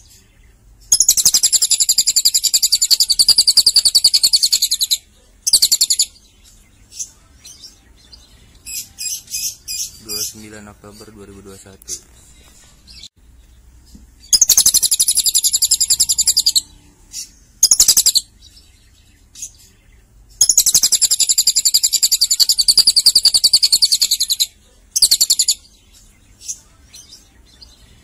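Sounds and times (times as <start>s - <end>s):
lovebird chattering trills: 0.9s - 6.2s, 14.2s - 18.3s, 20.4s - 25.7s.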